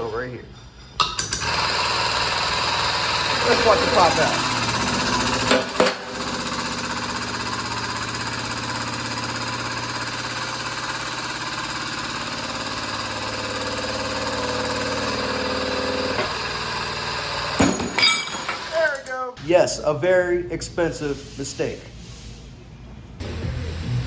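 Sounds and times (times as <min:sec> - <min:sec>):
hydraulic pump running: 0:01.0 - 0:19.1.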